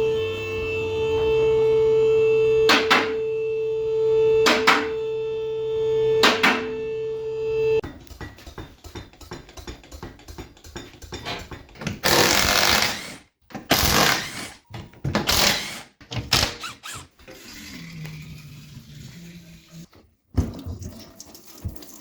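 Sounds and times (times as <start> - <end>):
power tool bursts: 0.0 - 7.8, 11.9 - 18.1
tools clicking and knocking: 7.8 - 17.2.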